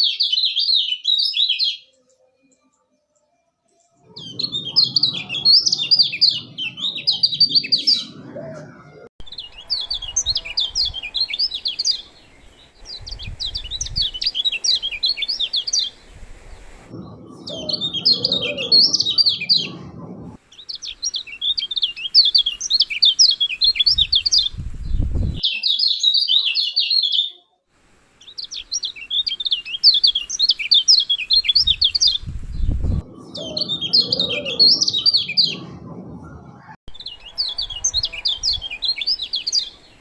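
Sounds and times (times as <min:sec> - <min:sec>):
bird singing rapid high chirps: 0:04.1 - 0:08.2, 0:09.2 - 0:16.1, 0:17.0 - 0:19.8, 0:20.5 - 0:27.0, 0:28.2 - 0:35.6, 0:36.9 - 0:40.0
low rumble: 0:15.9 - 0:20.4, 0:32.2 - 0:38.9.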